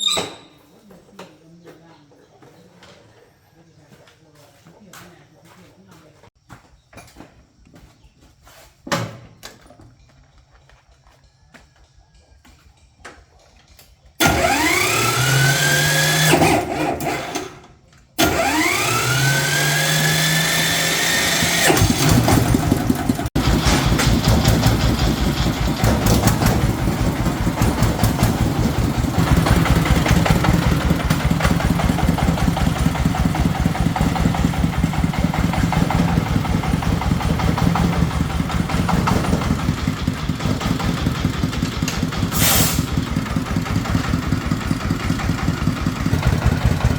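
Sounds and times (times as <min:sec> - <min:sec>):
engine idling: 0:14.2 - 0:16.4, 0:18.2 - 0:46.9
electric starter whine: 0:14.2 - 0:46.9.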